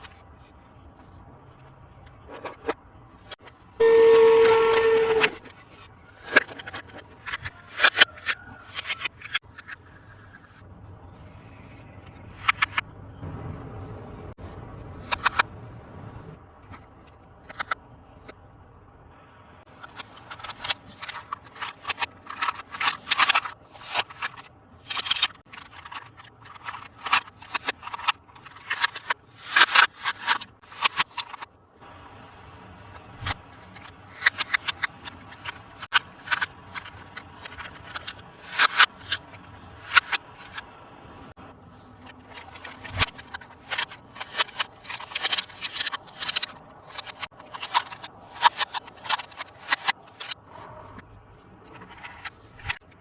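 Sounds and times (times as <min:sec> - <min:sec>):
toy packaging crinkling: 0:19.8 - 0:31.4, 0:42.0 - 0:50.4.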